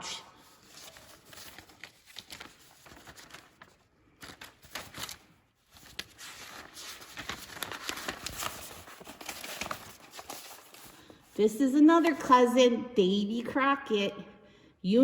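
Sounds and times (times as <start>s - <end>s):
crinkling and rustling: 0.4s - 11.4s.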